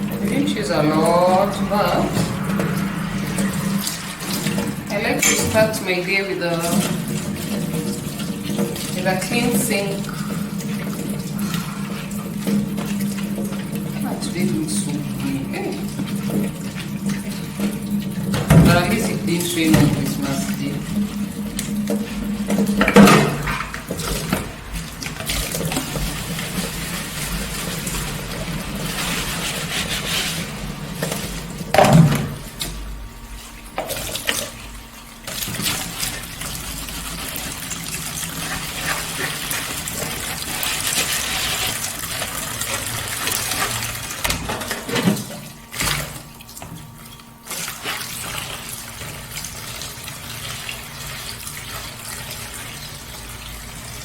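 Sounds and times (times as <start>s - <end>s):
tap running into sink: 15.8s - 32.8s, 33.6s - 49.9s
dishes knocking: 22.5s - 24.5s.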